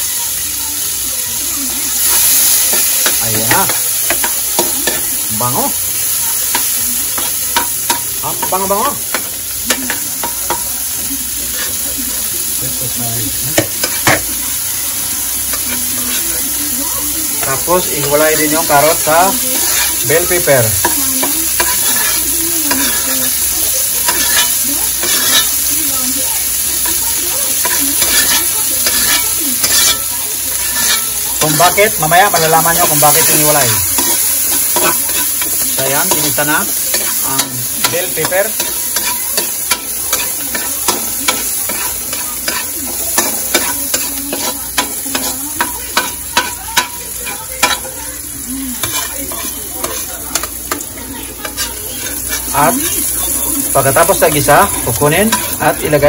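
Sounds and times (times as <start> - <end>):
pepper sizzling in hot oil: 0.0 - 56.0
metal spatula scraping a wok: 15.5 - 16.5, 17.4 - 25.9, 26.8 - 48.0, 48.7 - 56.0.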